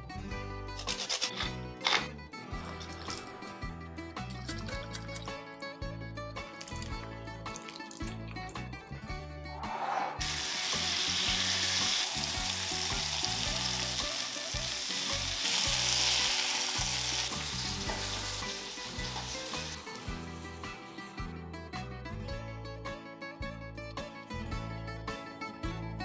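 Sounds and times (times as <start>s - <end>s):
chicken sizzling in oil: 10.2s - 20.2s.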